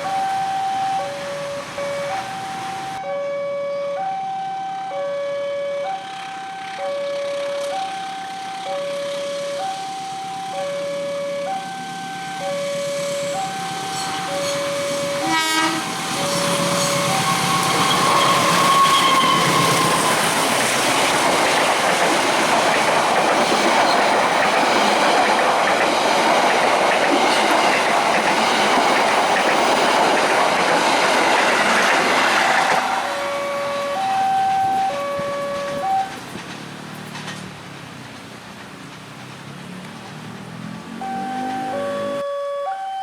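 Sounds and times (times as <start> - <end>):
level crossing alarm chiming: 0.0 - 36.2, 40.9 - 43.0
train wheels rolling on rails: 5.9 - 42.2
train horn blast: 12.7 - 20.4, 32.8 - 36.2
wheel squeal: 13.4 - 21.2.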